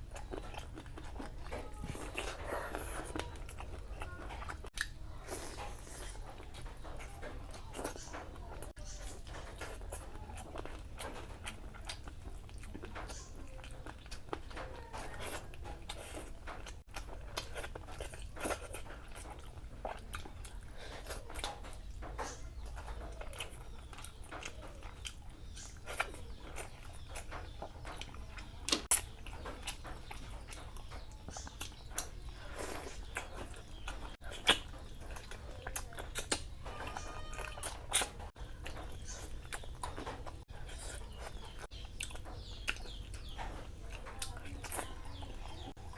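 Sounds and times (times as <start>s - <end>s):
person chewing food: 0.0s - 45.9s.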